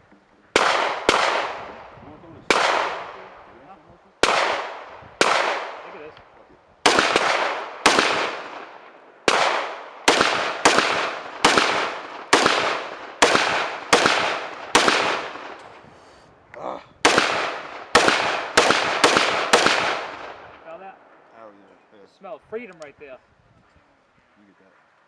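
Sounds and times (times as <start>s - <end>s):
rifle shots echoing: 0.5s - 3.5s, 4.2s - 6.2s, 6.8s - 15.8s, 17.0s - 21.1s.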